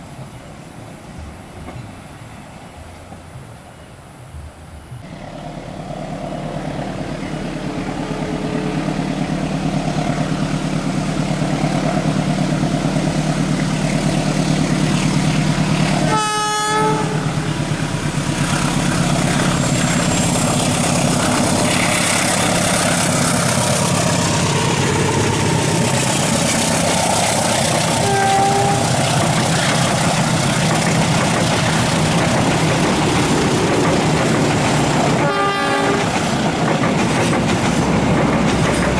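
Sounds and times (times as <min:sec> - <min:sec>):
train passing: 0:00.0 - 0:38.9
train horn blast: 0:16.0 - 0:17.6, 0:27.4 - 0:29.4, 0:35.1 - 0:36.3.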